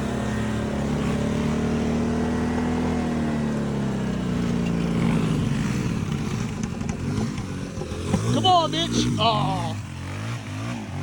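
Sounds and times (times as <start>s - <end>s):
lawnmower engine running: 0.0s - 11.0s.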